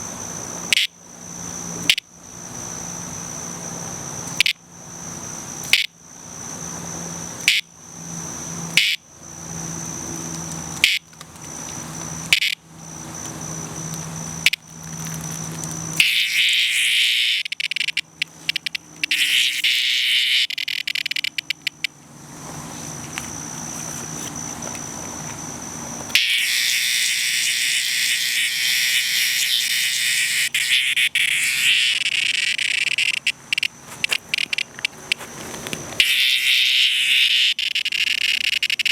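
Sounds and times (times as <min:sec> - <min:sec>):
cicada buzzing: 0:00.0 - 0:38.9.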